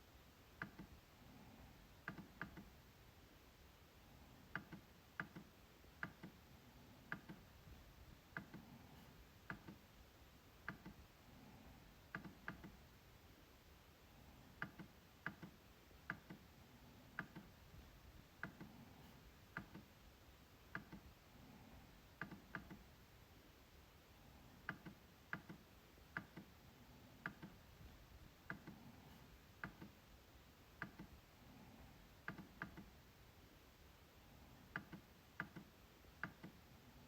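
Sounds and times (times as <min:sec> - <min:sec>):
trackpad clicking: 0:17.2 - 0:17.6.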